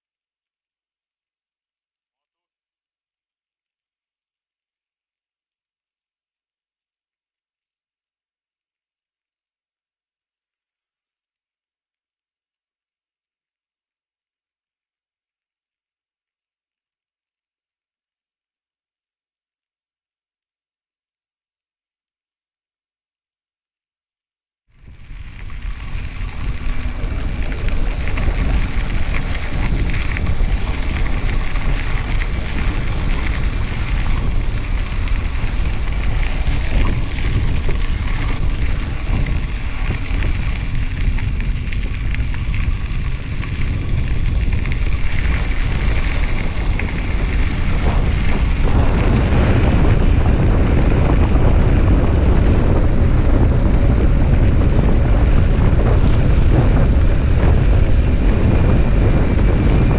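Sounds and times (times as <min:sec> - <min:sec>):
wind rushing over microphone: 0:24.8 - 0:59.9.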